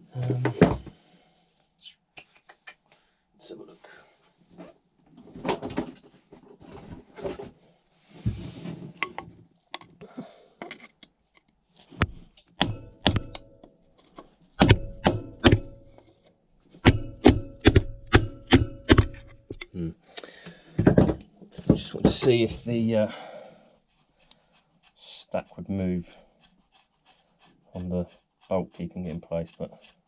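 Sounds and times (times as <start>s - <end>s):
hammer tapping metal: 12.6s - 13.6s, 14.6s - 16.0s, 16.8s - 19.6s.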